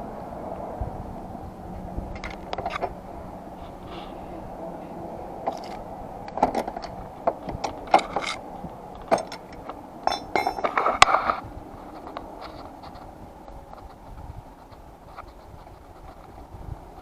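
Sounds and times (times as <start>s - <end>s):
metal hand tools clinking: 9.0s - 11.0s
metallic ring: 9.1s - 11.1s.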